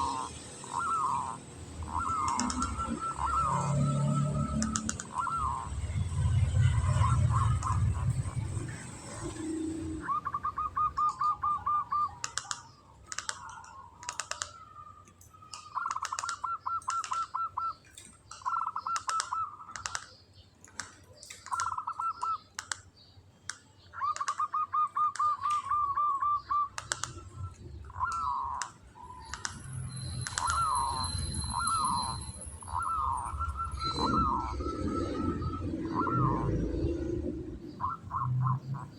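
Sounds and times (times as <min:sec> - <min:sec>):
dove trilled cooing: 0:00.0 - 0:14.8, 0:15.6 - 0:20.2, 0:21.4 - 0:22.4, 0:24.0 - 0:38.9.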